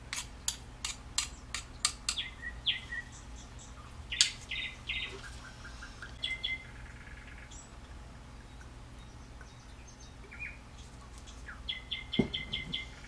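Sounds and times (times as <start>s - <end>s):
small birds chirping: 1.2s - 13.0s.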